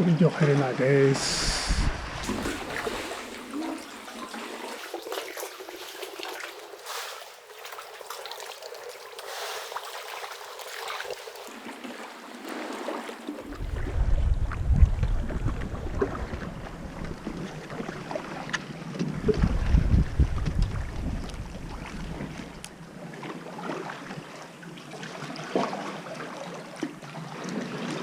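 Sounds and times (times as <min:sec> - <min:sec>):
low rumble: 0:01.2 - 0:02.3, 0:13.6 - 0:17.4
water lapping among rocks: 0:01.7 - 0:28.0
small splashes and drips: 0:02.2 - 0:13.8.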